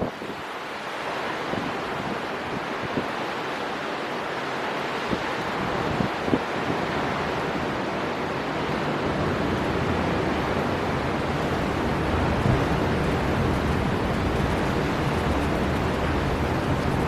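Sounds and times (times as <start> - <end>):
sea surf: 0.0 - 17.0
storm wind blowing: 8.6 - 17.0.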